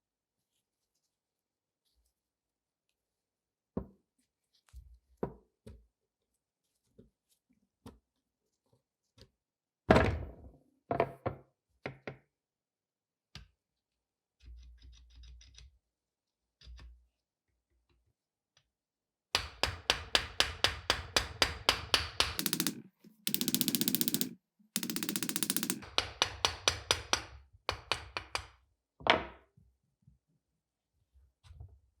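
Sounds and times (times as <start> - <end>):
fast run of sharp knocks: 22.4 - 25.8.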